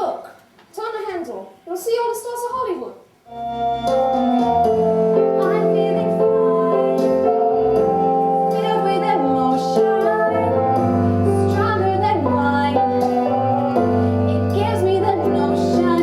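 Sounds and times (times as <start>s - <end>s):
instrumental backing: 3.3s - 16.0s
young voices singing: 5.4s - 7.9s, 8.5s - 13.4s, 14.0s - 16.0s.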